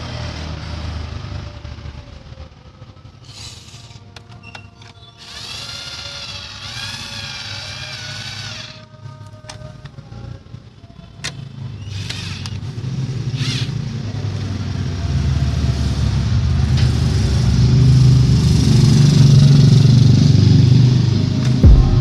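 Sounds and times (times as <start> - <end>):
vehicle engine running: 13.9 - 22.0.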